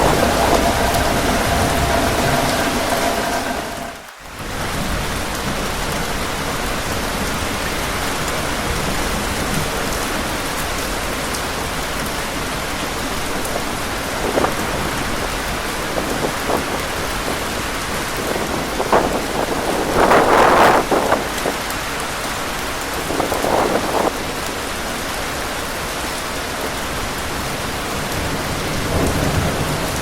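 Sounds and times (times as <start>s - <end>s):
heavy rain: 0.0s - 30.0s.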